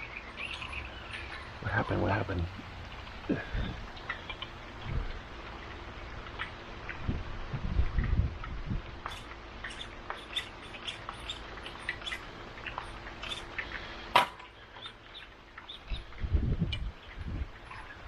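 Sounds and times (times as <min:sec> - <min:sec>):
raindrops ticking: 0:00.0 - 0:07.1.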